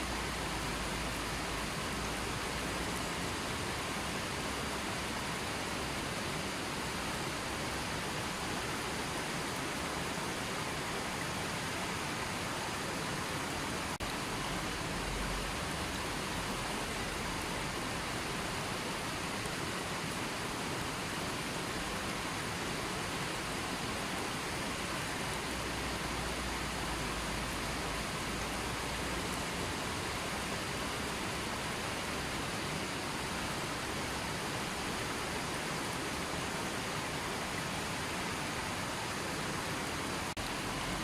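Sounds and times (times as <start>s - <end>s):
river water rushing: 0.0s - 41.0s.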